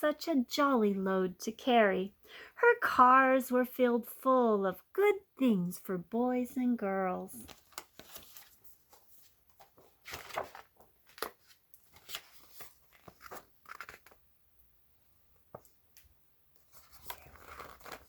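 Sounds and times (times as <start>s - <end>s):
book pages rustling and turning: 7.4s - 14.2s, 15.4s - 18.0s.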